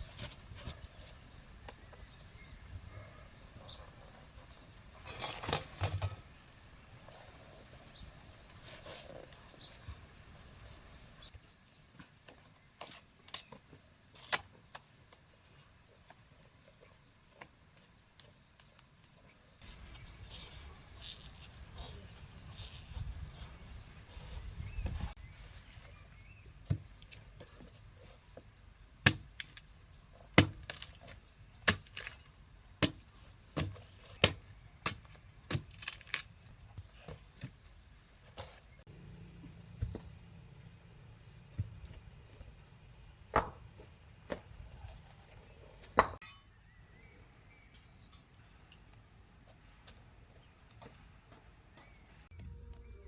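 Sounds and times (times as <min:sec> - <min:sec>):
high insect drone: 0:13.1 - 0:25.3.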